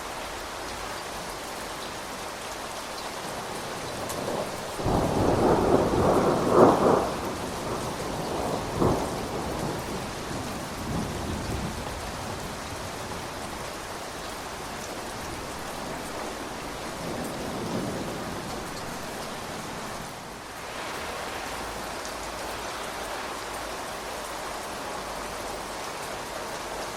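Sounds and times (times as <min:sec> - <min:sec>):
steady rain: 0:00.0 - 0:26.9
thunder rolling: 0:03.8 - 0:13.4
thunderclap: 0:04.0 - 0:11.9.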